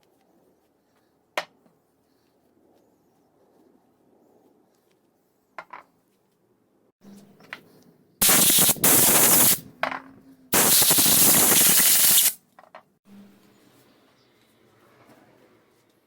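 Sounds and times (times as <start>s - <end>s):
pressurised spray hissing: 8.2s - 9.6s, 10.6s - 12.4s.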